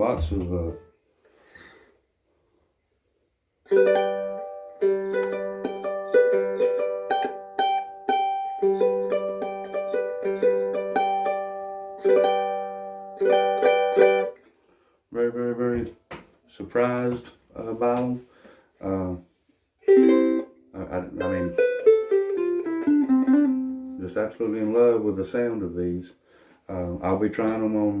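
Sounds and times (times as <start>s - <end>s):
ukulele picked chord melody: 3.7s - 14.4s, 19.8s - 24.0s.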